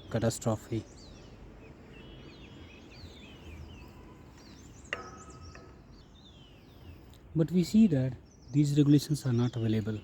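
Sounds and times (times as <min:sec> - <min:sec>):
birds whistling: 0:00.4 - 0:10.0.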